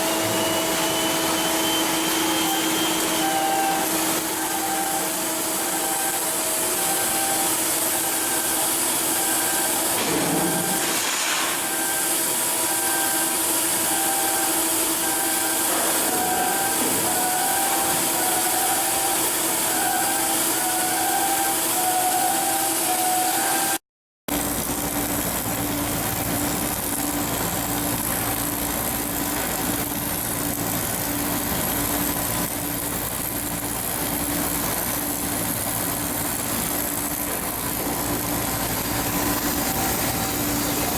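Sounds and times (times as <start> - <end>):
industrial machinery noise: 0.0 - 40.9
repeating electronic tone: 1.3 - 10.9, 12.7 - 23.8.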